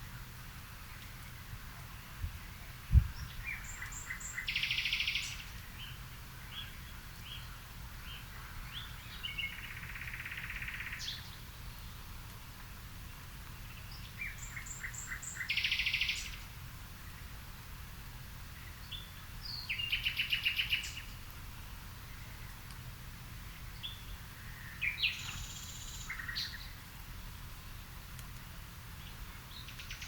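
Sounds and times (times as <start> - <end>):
low background rumble: 0.0 - 30.0
songbird singing trills: 0.8 - 12.1, 13.0 - 17.3, 18.5 - 21.4, 23.4 - 26.8, 29.0 - 30.0.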